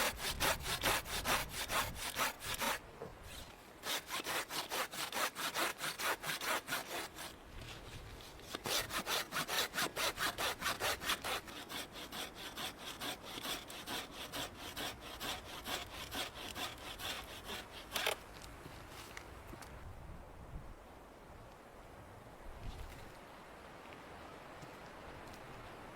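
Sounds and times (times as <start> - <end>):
hand saw cutting wood: 0.0 - 7.8, 8.4 - 18.2.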